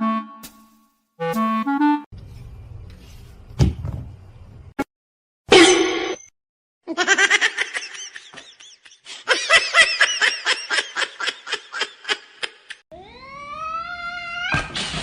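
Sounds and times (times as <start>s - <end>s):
high-pitched laughter: 6.9s - 12.8s.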